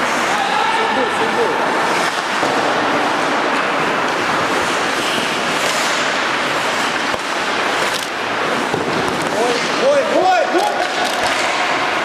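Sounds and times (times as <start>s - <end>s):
skates scraping on ice: 0.0s - 12.0s
hockey stick or puck knock: 8.6s - 9.8s, 10.6s - 11.8s.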